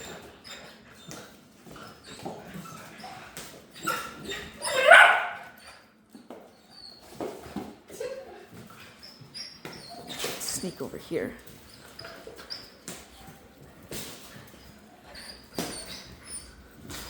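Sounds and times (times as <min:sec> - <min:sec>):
puppies scuffling: 0:00.0 - 0:17.0
puppy yip: 0:03.8 - 0:05.7.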